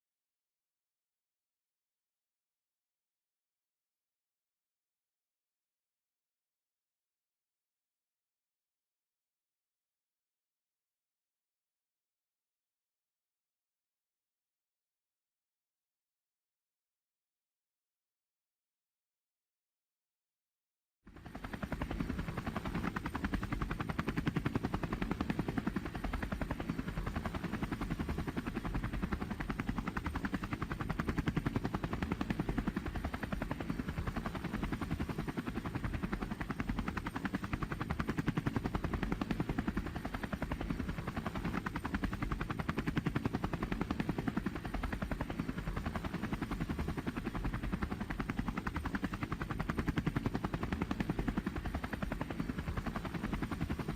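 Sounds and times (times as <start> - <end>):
helicopter rotor chopping: 21.1 - 53.9.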